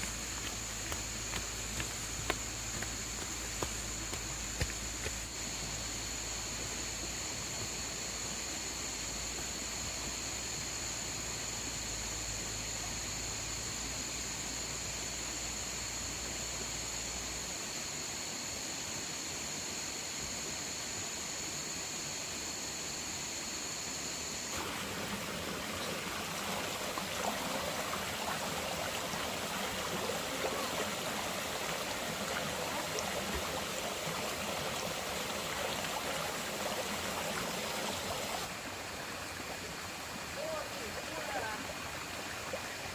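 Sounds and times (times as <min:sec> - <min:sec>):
running water: 0:00.0 - 0:05.9, 0:24.5 - 0:42.9.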